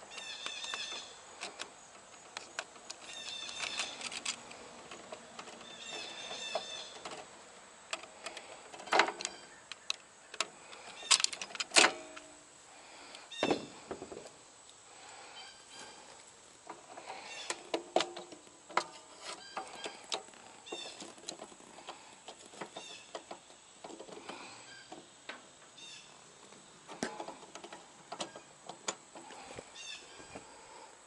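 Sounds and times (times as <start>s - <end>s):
tools and parts clinking: 0.1s - 7.3s, 7.9s - 12.3s, 16.7s - 25.4s.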